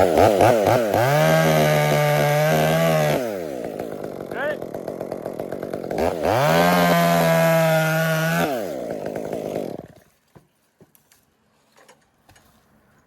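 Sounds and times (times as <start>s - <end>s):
chainsaw cutting and idling: 0.0s - 10.2s.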